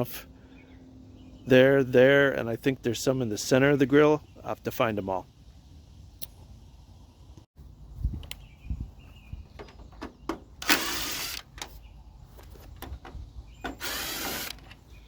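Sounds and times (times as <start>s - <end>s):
cordless driver motor whirring: 10.6s - 11.5s, 13.8s - 14.7s.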